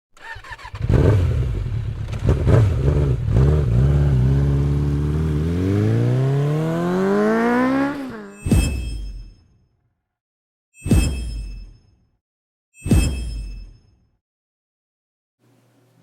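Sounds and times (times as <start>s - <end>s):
motorcycle engine revving: 0.2s - 8.6s.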